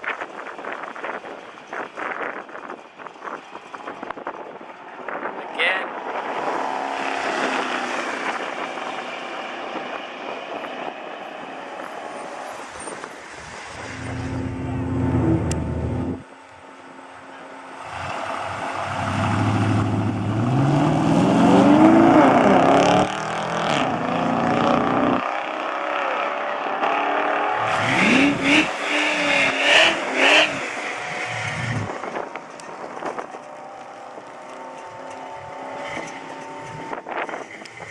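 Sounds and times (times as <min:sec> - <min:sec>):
truck accelerating: 0:06.0 - 0:37.9
truck engine revving: 0:13.6 - 0:16.3, 0:17.7 - 0:37.9.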